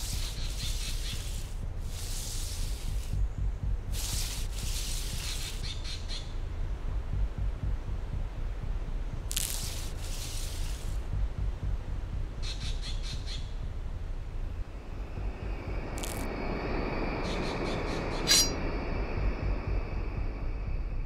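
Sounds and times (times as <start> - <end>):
birds chirping: 0.0 - 7.7, 11.6 - 14.0
steady low rumble: 0.0 - 21.0
bird squawk: 0.1 - 1.6, 4.8 - 6.3, 12.4 - 13.5.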